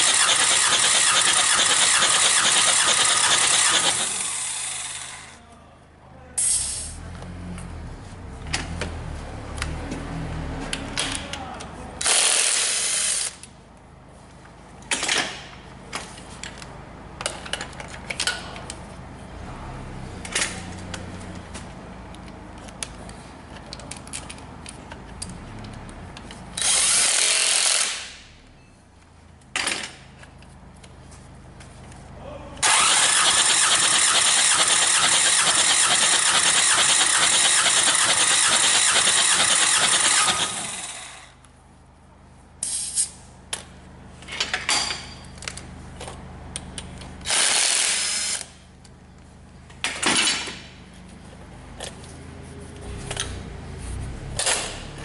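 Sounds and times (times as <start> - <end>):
diesel engine cranking on starter: 0.0 - 5.2, 32.6 - 41.4
tools clicking and knocking: 14.9 - 18.8, 22.1 - 26.8
short loud bursts: 32.6 - 40.8.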